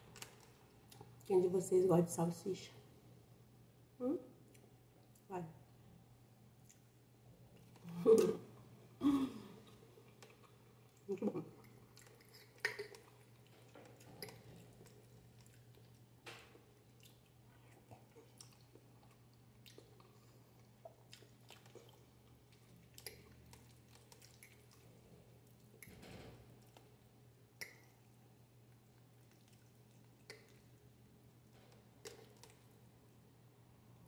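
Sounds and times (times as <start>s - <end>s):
faint low hum: 0.0s - 34.0s
person chewing: 9.4s - 25.8s, 28.7s - 30.8s
wet mouth smacks and clicks: 12.0s - 13.1s, 27.6s - 27.9s, 29.3s - 30.6s.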